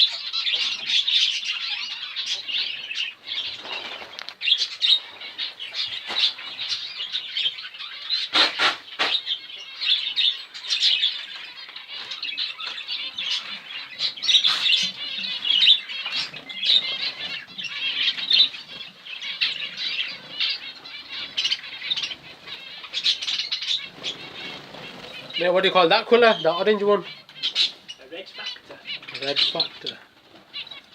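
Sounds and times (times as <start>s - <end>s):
cage birds chirping: 0.0s - 30.9s
wings fluttering: 3.4s - 4.8s, 8.3s - 9.2s, 14.3s - 25.5s.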